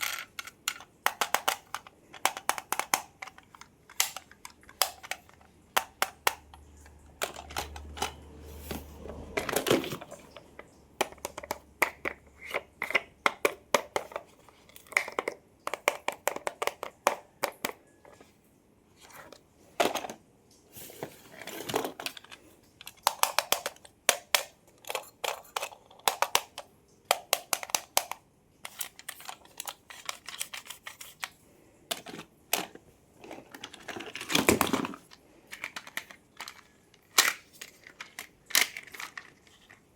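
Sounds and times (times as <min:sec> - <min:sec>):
toy cars clicking and tapping: 0:00.0 - 0:18.3, 0:21.1 - 0:39.9.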